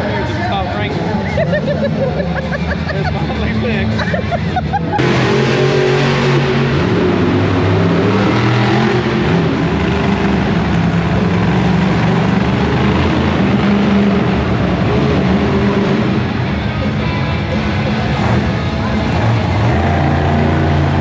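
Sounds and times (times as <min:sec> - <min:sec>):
truck engine droning: 0:00.0 - 0:21.0.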